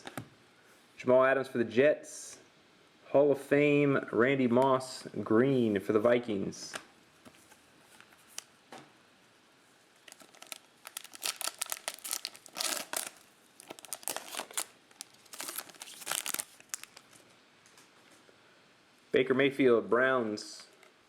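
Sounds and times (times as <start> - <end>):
wrapper crinkling: 10.0 - 17.3.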